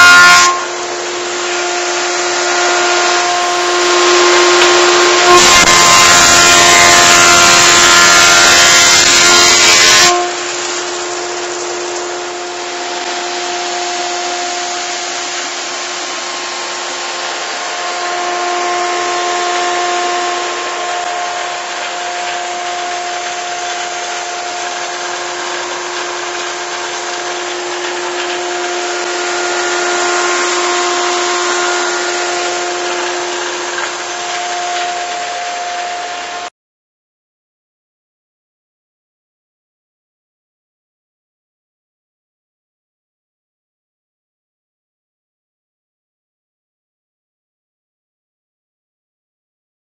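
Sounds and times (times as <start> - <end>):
wood thicknesser running: 0.0 - 36.5.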